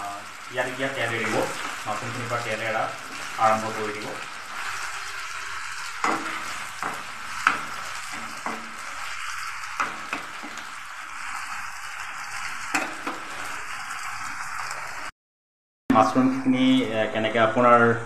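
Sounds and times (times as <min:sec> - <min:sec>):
mushrooms sizzling in oil: 0:00.0 - 0:15.1
metal spoon scraping a pan: 0:04.2 - 0:15.0.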